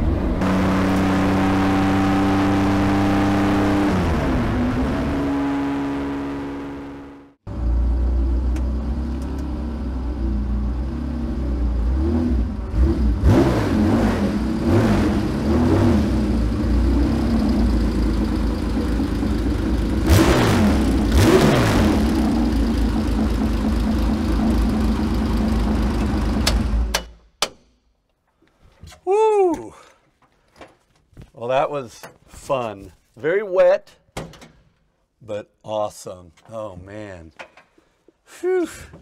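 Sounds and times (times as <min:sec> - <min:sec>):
engine throttle blips: 0:00.0 - 0:09.5
race car engine idling: 0:16.2 - 0:20.1, 0:22.1 - 0:26.9.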